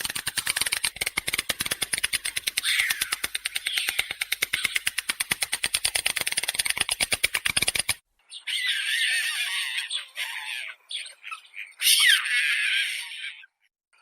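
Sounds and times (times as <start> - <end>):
stork clattering its bill: 0.0 - 8.0
bird squawking calls: 2.5 - 5.0, 8.3 - 13.6.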